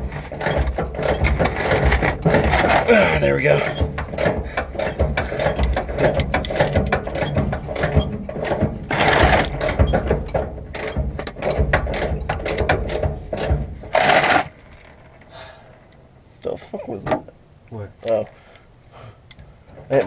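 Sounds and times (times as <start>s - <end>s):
metal tapping and scraping: 0.0s - 15.2s, 19.3s - 20.0s.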